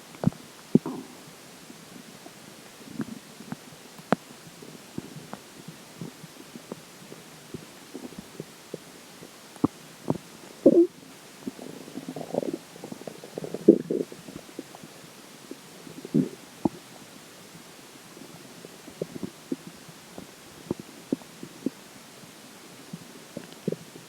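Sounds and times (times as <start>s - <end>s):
stomach gurgling: 0.2s - 3.6s, 6.0s - 17.0s, 18.2s - 21.8s, 22.9s - 24.0s.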